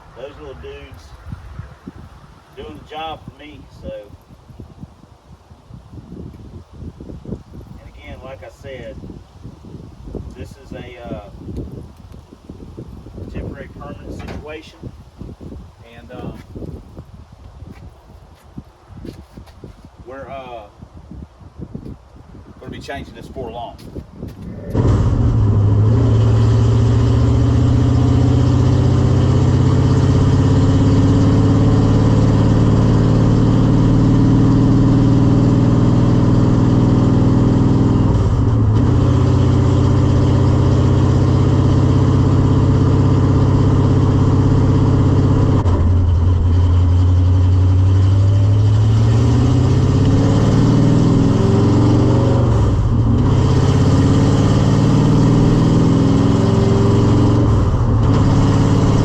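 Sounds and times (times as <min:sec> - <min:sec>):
vehicle engine running loudly: 0:24.7 - 0:59.0.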